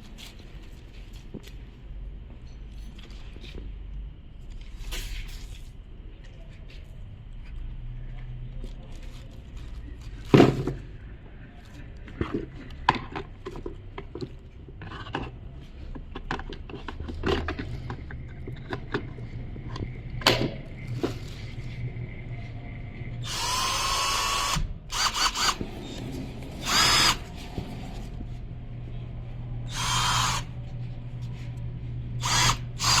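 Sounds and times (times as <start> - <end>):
cordless drill motor spinning: 23.2 - 28.1, 29.6 - 30.7, 32.2 - 33.0.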